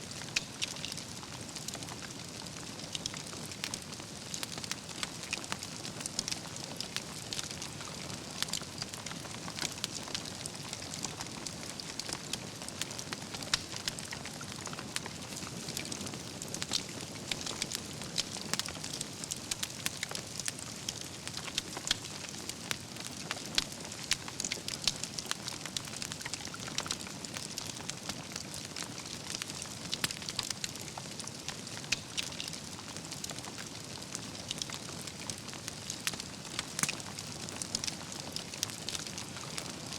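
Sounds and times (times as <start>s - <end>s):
campfire crackling: 0.1s - 39.9s
embers popping and snapping: 0.2s - 1.0s, 2.8s - 31.1s, 31.7s - 33.6s, 34.4s - 39.9s.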